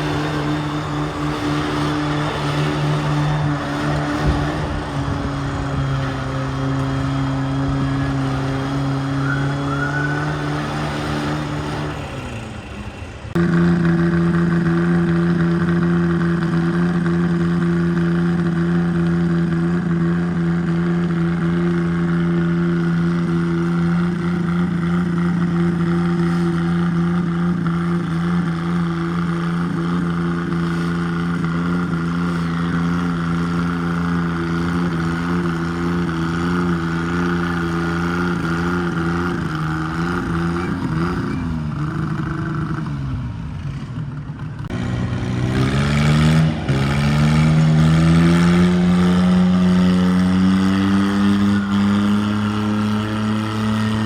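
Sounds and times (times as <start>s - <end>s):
tractor engine running hard: 0.0s - 54.0s.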